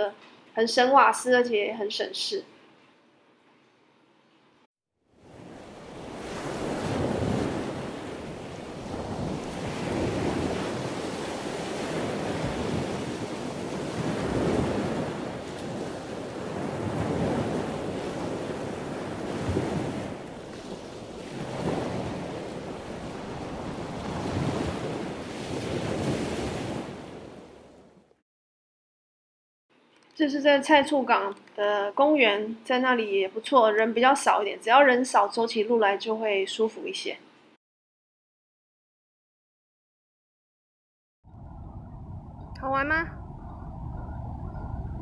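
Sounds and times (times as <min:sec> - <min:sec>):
waves washing in and out: 0:05.1 - 0:28.1.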